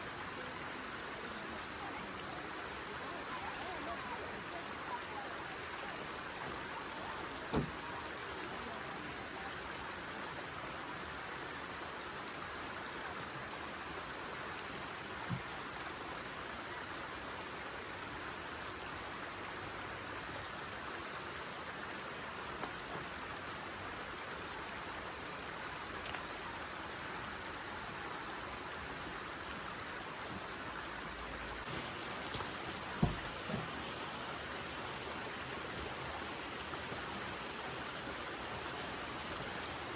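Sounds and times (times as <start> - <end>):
flowing stream water: 0.0 - 39.9
short knocks: 31.7 - 33.8.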